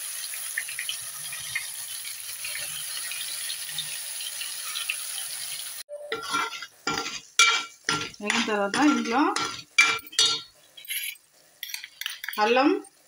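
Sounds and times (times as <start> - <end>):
paste sizzling in hot oil: 0.0 - 12.3
spoon clinking against metal pot: 6.0 - 12.5.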